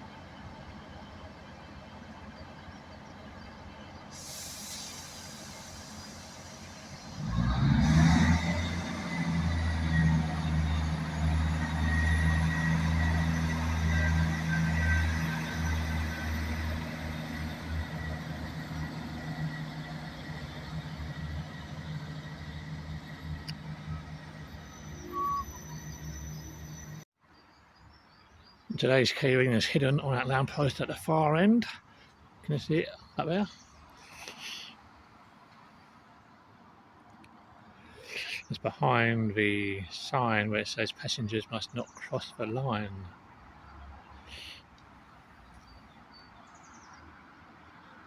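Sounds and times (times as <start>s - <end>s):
train engine rumbling: 0.0s - 27.1s, 44.3s - 45.5s
air brake hiss: 4.1s - 8.2s.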